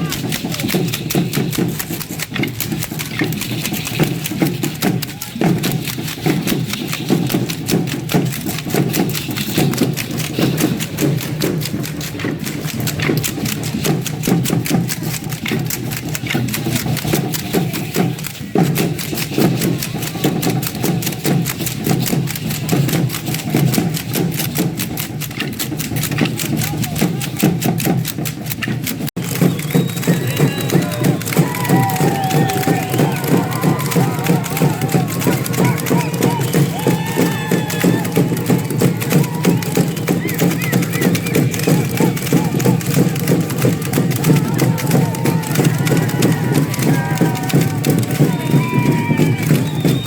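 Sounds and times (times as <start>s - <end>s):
drum beat: 0.0s - 50.0s
shaken rattles: 0.0s - 50.0s
dancers stamping: 29.2s - 50.0s.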